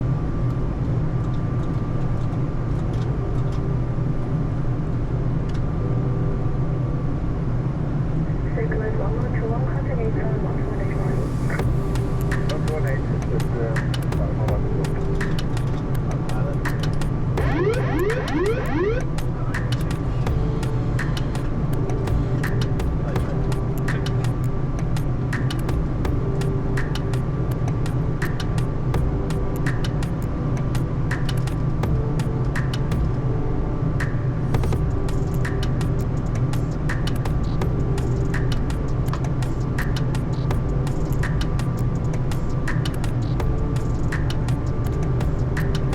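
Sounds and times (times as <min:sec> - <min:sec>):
airplane engine and airflow rumble: 0:00.0 - 0:45.9
thin steady whine: 0:16.0 - 0:25.3.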